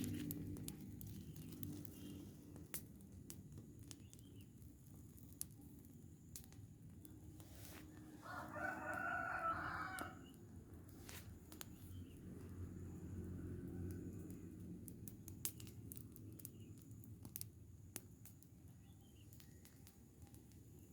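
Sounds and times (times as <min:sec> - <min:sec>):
fire crackling and popping: 0:00.0 - 0:20.9
rooster crowing: 0:08.2 - 0:10.4.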